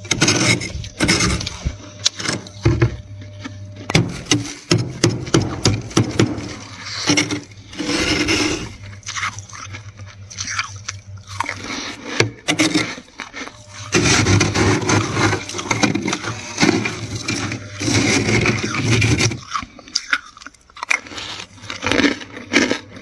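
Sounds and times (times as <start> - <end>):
freezer frost scraped and crunched: 0.0 - 23.0.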